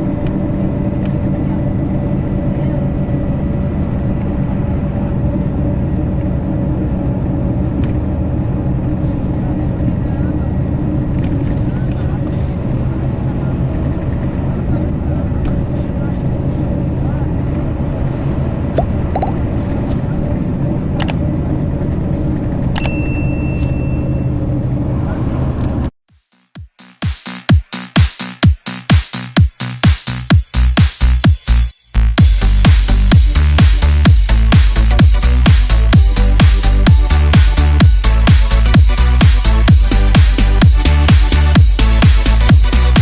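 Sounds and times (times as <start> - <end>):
coach engine drone: 0.0 - 25.9, 30.6 - 43.0
road noise: 0.0 - 25.9, 29.3 - 43.0
ringing ding: 22.8 - 24.3.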